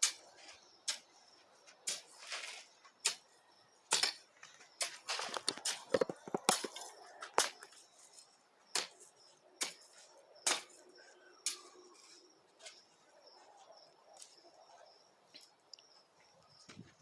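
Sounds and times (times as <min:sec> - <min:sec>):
hoe chopping into ground: 0:01.8 - 0:07.8, 0:08.7 - 0:10.8.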